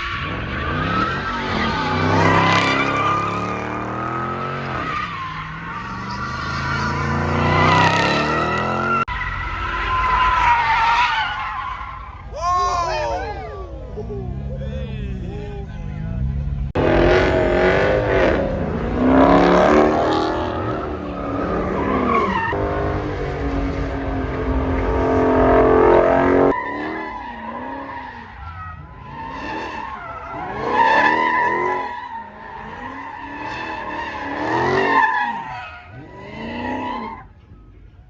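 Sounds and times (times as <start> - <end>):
tires squealing: 0.0 - 37.8
car engine revving hard: 5.5 - 9.1, 16.6 - 27.0.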